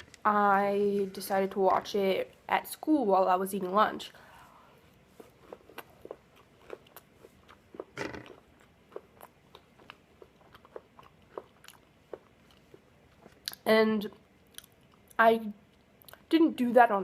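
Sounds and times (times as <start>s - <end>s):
chewing crisp waffle: 4.9s - 16.2s.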